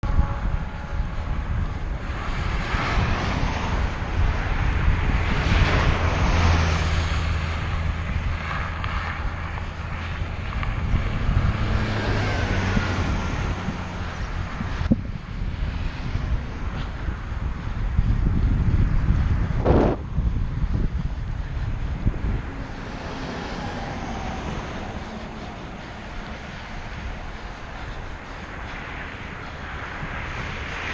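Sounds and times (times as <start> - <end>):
low hum: 0.0 - 30.9
steady low rumble: 0.0 - 30.9
wind buffeting microphone: 0.0 - 30.9.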